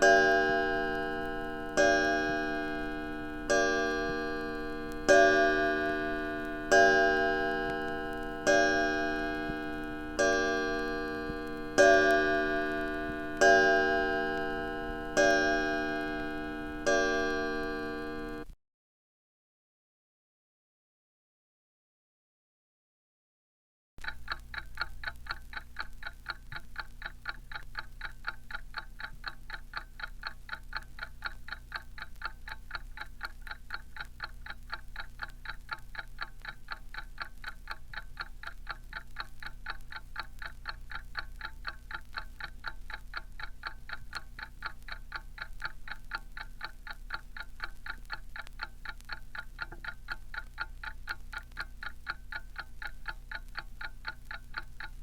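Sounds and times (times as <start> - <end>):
low hum: 0.0 - 18.4
alarm clock ticking: 0.0 - 18.6, 24.0 - 55.0.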